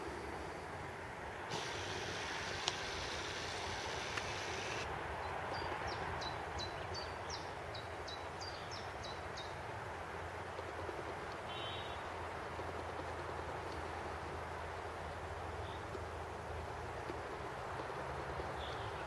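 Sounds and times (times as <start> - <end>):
outdoor background noise: 0.0 - 19.0
songbird chirping: 18.4 - 19.0.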